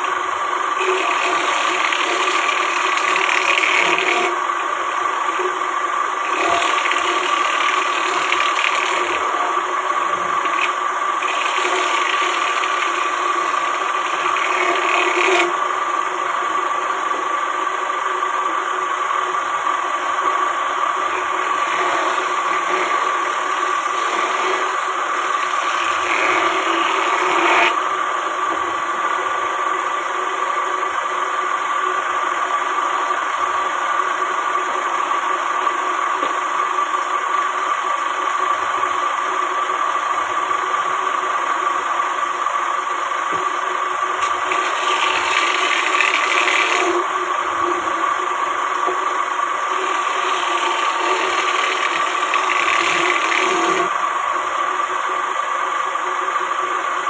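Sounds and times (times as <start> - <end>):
woodworking power tool running: 0.0 - 57.0.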